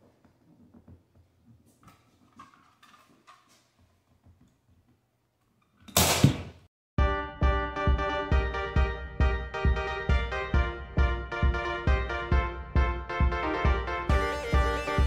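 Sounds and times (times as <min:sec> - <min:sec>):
background music with a beat: 0:07.0 - 0:15.0.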